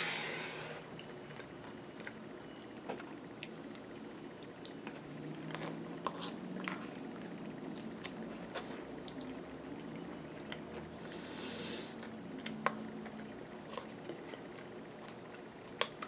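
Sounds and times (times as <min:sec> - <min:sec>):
person chewing crunchy food: 0:02.9 - 0:11.1, 0:12.3 - 0:16.0.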